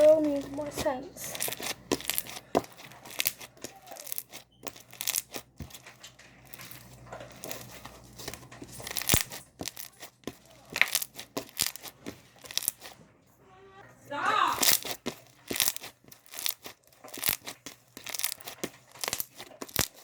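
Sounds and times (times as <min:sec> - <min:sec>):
slime crackling and popping: 0:00.0 - 0:13.0, 0:14.5 - 0:20.0.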